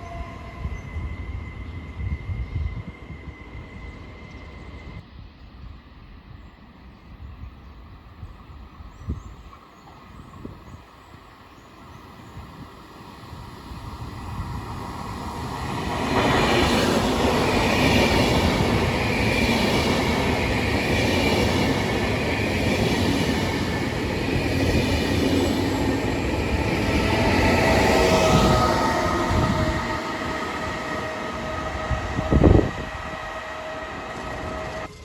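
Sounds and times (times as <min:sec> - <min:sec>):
high squeal from train wheels: 0:00.0 - 0:35.0
train wheels on rails: 0:11.8 - 0:35.0.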